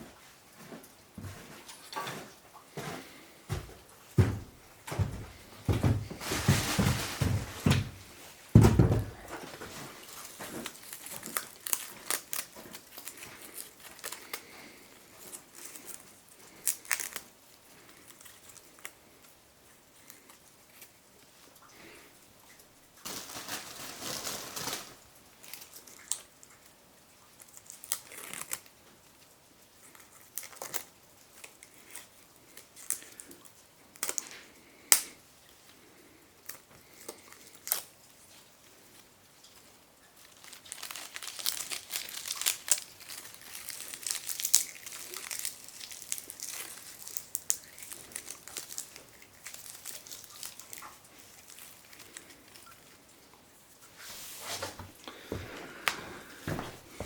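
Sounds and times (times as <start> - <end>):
dull thump: 8.6 - 9.3
wood fire crackling: 40.4 - 50.8, 53.9 - 57.0.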